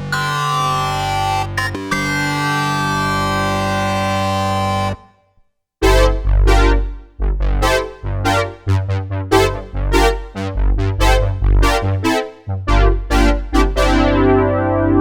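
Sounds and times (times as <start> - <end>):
synthesizer bass notes: 5.8 - 15.0
synthesizer chords: 5.8 - 15.0.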